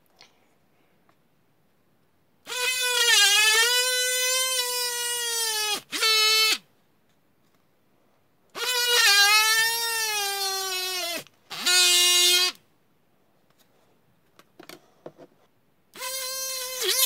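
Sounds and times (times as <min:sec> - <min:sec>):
mini drill whining: 0:02.5 - 0:06.6, 0:08.6 - 0:12.6, 0:16.0 - 0:17.0.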